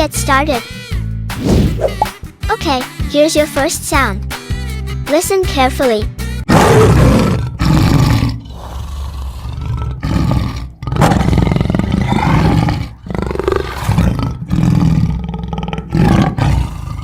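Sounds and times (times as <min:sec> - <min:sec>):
lion roaring: 0:06.5 - 0:17.0.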